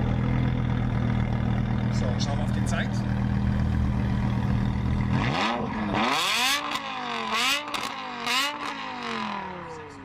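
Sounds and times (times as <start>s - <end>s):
drag racing engines accelerating: 5.0s - 8.8s.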